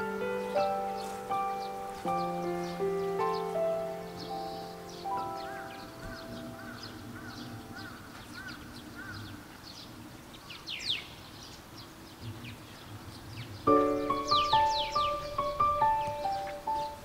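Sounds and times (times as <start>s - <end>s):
background music held tones: 0.0s - 8.8s, 13.6s - 17.0s
small birds chirping: 0.0s - 17.0s.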